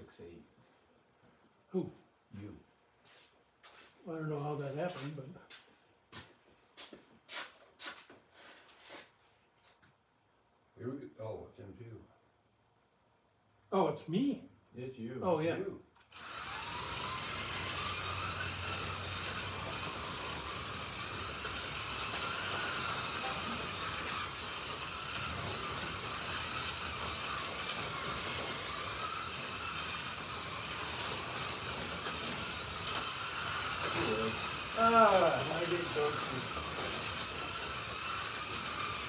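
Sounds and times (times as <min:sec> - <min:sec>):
slot car motors whining: 0:16.0 - 0:39.0
cars hissing on rails: 0:16.2 - 0:39.0.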